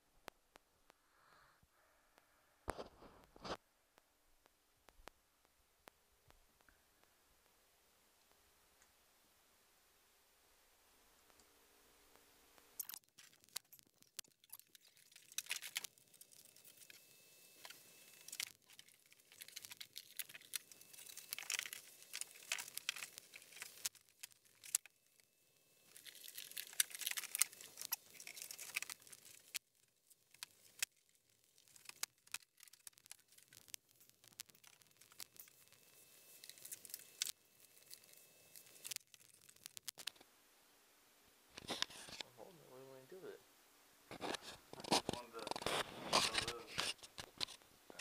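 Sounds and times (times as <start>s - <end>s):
crinkling and rustling: 2.7s - 3.6s, 12.8s - 40.3s, 41.5s - 42.3s, 44.1s - 48.0s.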